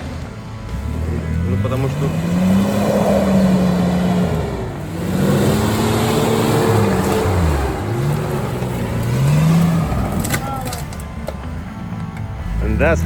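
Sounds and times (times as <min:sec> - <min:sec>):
vehicle engine revving hard: 0:00.0 - 0:10.4.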